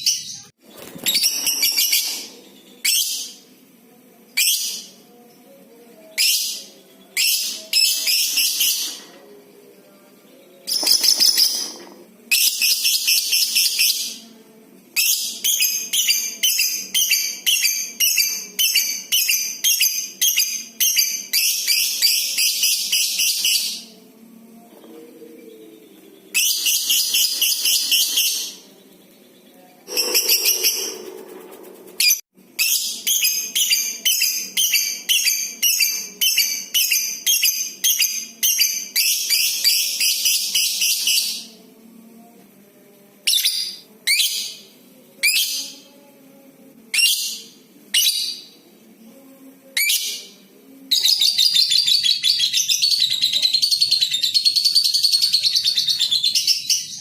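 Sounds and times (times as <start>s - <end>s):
lovebird chatter: 29.9s - 32.2s.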